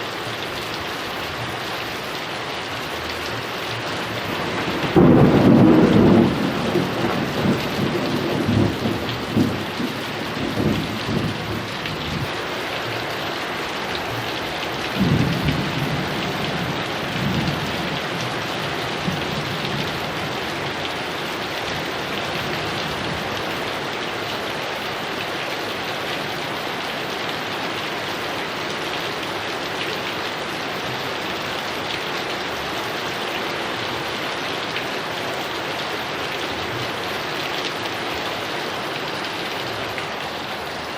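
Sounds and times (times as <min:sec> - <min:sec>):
heavy rain: 0:00.0 - 0:40.9
rolling thunder: 0:04.2 - 0:12.3.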